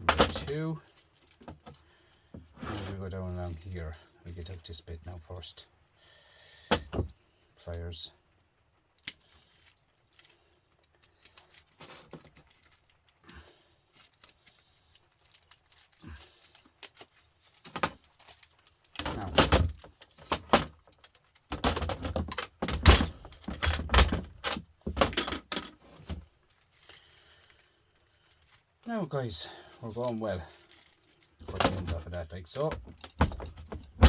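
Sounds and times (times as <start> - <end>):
metal rattling and scraping: 15.1 - 26.9, 29.8 - 34.0.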